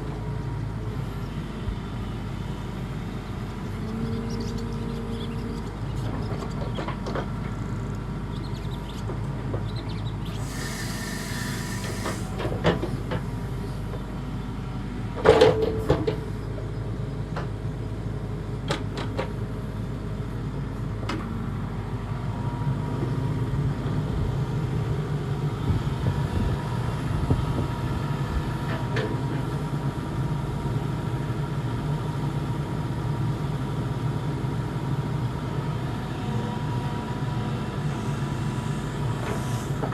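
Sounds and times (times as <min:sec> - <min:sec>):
excavator diesel engine running: 0:00.0 - 0:39.9
short hiss: 0:10.4 - 0:12.4.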